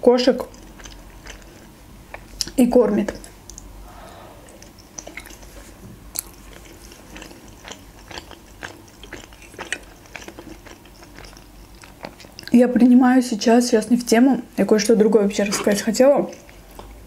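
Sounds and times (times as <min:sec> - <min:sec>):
chewing soft food: 0:00.3 - 0:03.7, 0:04.4 - 0:12.6, 0:15.4 - 0:17.0
wet mouth clicks and smacks: 0:03.2 - 0:03.7, 0:04.5 - 0:05.6.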